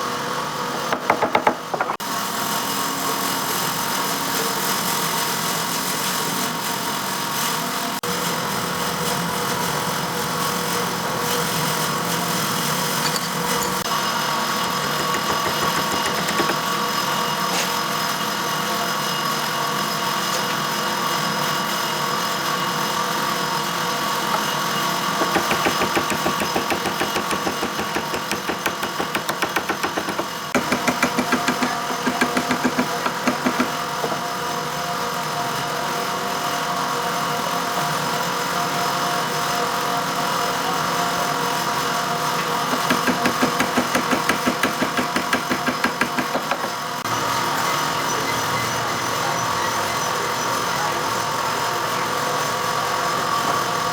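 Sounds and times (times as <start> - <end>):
power tool motor whining: 24.1 - 34.3.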